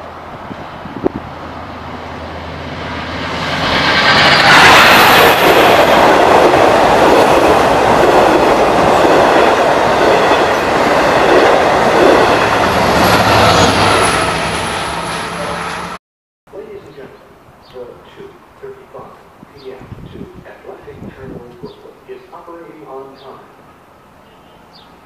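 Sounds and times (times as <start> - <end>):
coaches rumbling over rails: 0.0 - 16.0
diesel locomotive passing: 0.0 - 25.0.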